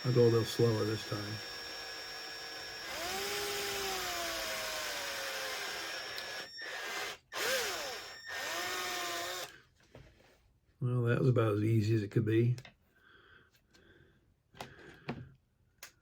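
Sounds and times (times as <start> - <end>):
power drill boring into plastic: 0.0 - 9.6.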